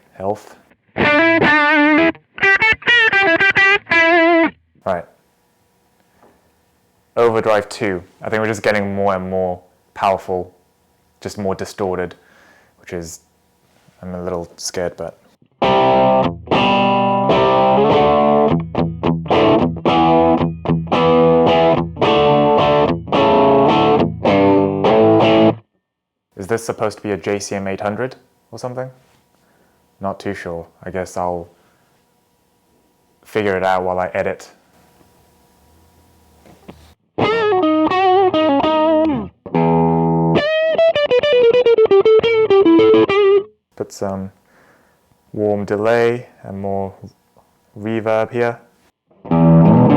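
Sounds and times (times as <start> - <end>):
distorted electric guitar chords: 0.7 - 5.0, 15.4 - 25.6, 35.5 - 43.5, 49.1 - 49.9.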